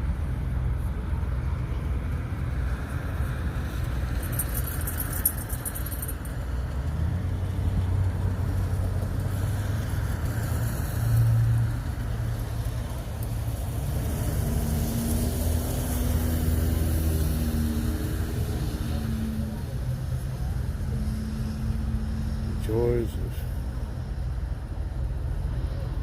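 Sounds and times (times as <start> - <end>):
vehicle engine rumble: 0.0 - 26.0
light jingle: 4.1 - 6.5.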